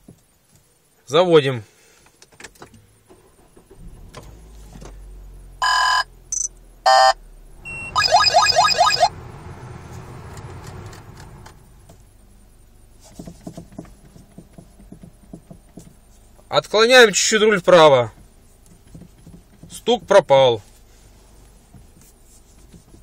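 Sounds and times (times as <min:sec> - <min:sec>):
car engine idling: 0:03.0 - 0:13.0
dashboard warning beeps: 0:05.6 - 0:09.1.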